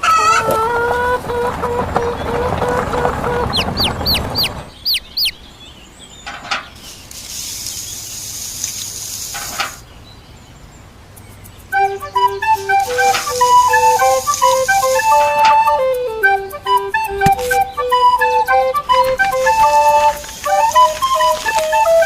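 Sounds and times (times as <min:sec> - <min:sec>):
faint hiss: 0:06.6 - 0:22.0.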